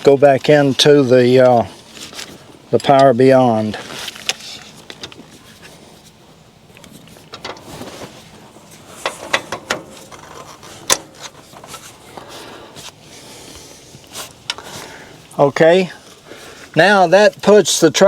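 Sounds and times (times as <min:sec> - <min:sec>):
metal clicks and knocks: 0:09.0 - 0:11.7.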